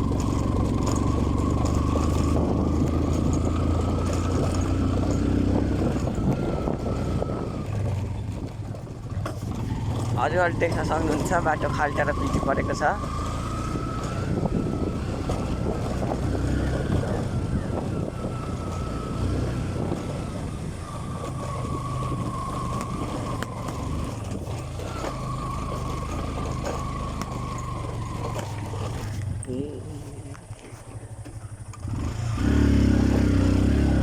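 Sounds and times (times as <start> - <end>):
knocks and rattles from bumps: 0.0 - 17.1, 19.7 - 29.5
motorcycle engine rumble: 0.0 - 34.0.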